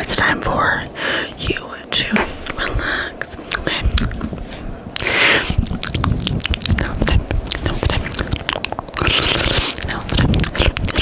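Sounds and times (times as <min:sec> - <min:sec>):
breathy hiss: 0:00.6 - 0:05.6
wet mouth clicks and smacks: 0:03.5 - 0:04.4, 0:05.0 - 0:11.0.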